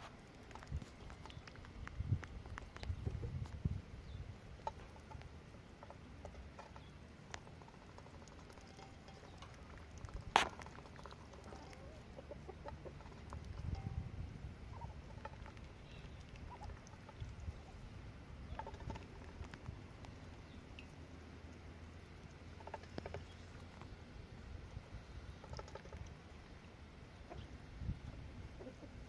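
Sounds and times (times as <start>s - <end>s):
light pattering: 0.4s - 3.6s
poultry calling softly: 28.5s - 29.0s.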